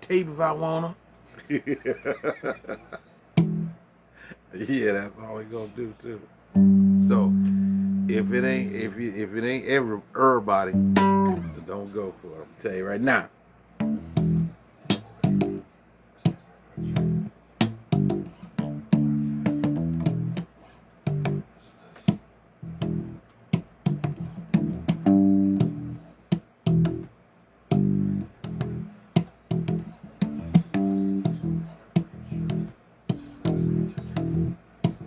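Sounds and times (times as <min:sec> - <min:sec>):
bass guitar riffs: 0:03.4 - 0:03.8, 0:06.5 - 0:09.2, 0:10.6 - 0:11.7, 0:13.8 - 0:15.6, 0:16.3 - 0:21.5, 0:22.1 - 0:27.1, 0:27.7 - 0:35.0.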